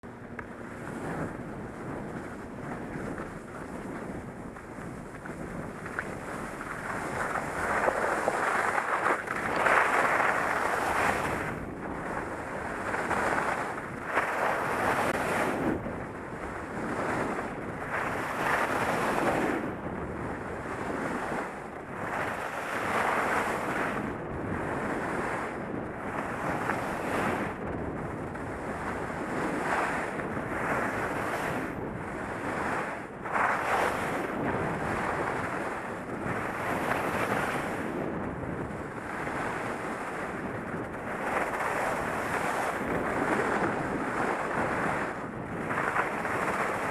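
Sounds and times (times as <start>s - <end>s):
wind buffeting microphone: 0.0s - 46.9s
skis scraping on snow: 0.8s - 15.7s, 18.0s - 19.6s, 22.1s - 24.0s, 32.5s - 35.7s, 36.3s - 38.1s, 41.2s - 45.0s, 45.6s - 46.9s.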